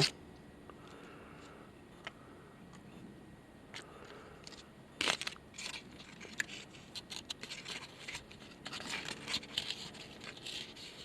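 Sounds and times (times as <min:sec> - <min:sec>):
scratching and crinkling of fish skin: 0:04.4 - 0:11.0.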